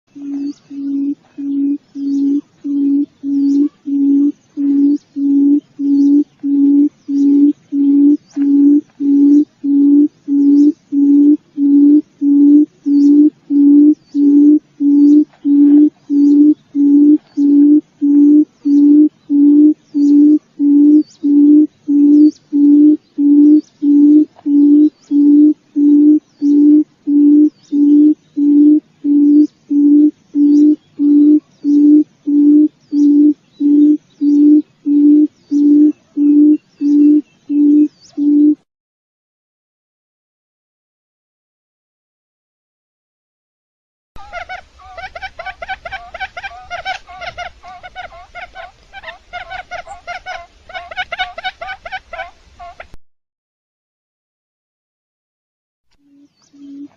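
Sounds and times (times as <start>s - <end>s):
quail hooting: 0.1s - 38.6s, 44.2s - 53.0s, 56.1s - 56.9s.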